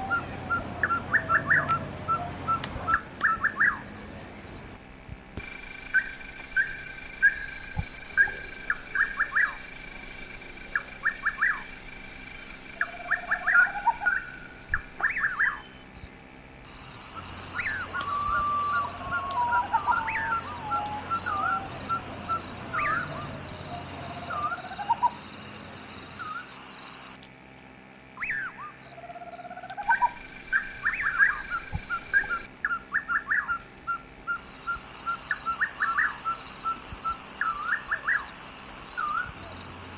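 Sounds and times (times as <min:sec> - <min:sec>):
high-pitched drone: 0:05.4 - 0:16.0, 0:17.1 - 0:25.0, 0:29.8 - 0:32.5
birds chirping: 0:12.8 - 0:16.1, 0:17.1 - 0:25.2.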